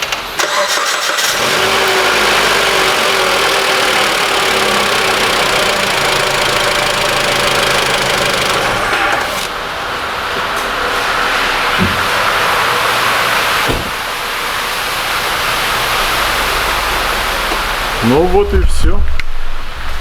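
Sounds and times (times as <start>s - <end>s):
starter cranking engine: 0.0s - 9.5s
car engine idling: 0.4s - 20.0s.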